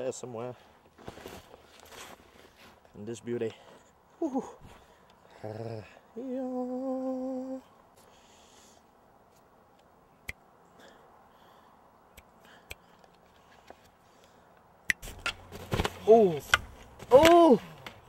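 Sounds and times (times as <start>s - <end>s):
person humming: 5.4s - 7.7s.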